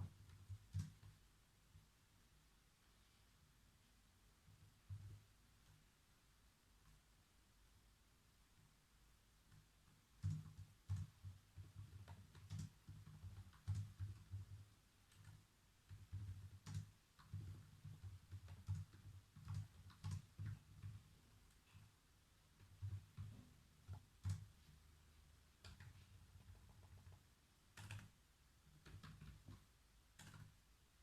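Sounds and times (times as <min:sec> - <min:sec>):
typing on computer keyboard: 0:00.0 - 0:01.2, 0:09.5 - 0:21.1, 0:22.6 - 0:24.7, 0:25.6 - 0:29.6, 0:30.2 - 0:30.6.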